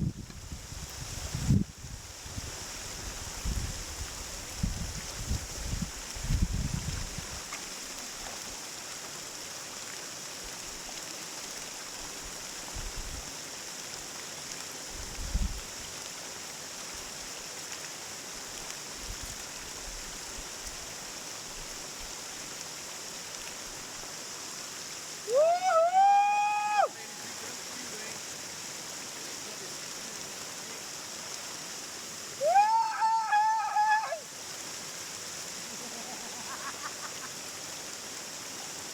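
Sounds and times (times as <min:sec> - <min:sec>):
waterfall flowing: 0:00.7 - 0:38.9
person calling loudly: 0:32.4 - 0:34.2.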